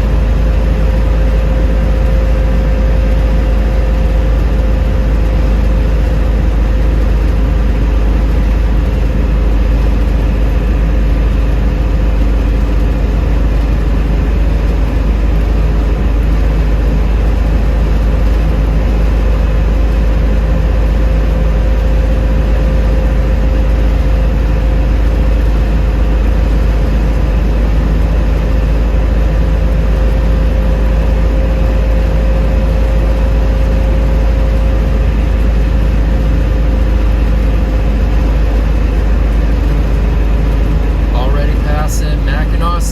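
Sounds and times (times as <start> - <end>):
in-cabin road noise: 0.0 - 42.9
faint steady hum: 19.6 - 42.9.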